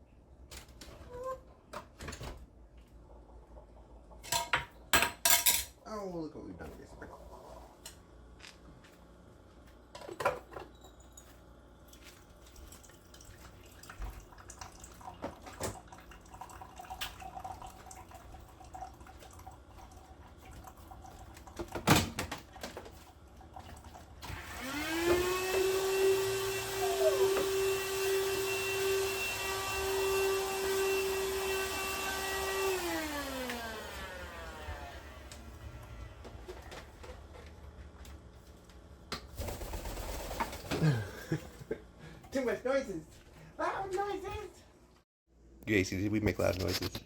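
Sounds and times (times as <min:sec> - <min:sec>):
kitchen things clattering: 0:04.2 - 0:05.8, 0:10.0 - 0:11.4
vacuum cleaner motor whine: 0:24.2 - 0:37.3.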